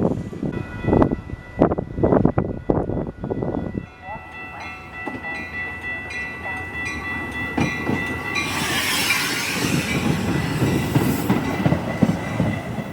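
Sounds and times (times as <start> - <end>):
train rumble and wheel clatter: 0.0 - 12.9
train rushing hiss: 8.3 - 12.9.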